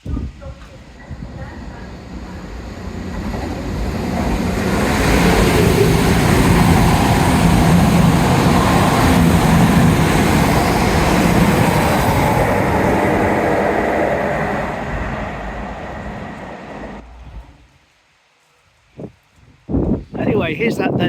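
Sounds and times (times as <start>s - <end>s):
diesel train engine drone: 0.0s - 17.8s
rail noise: 0.0s - 18.2s.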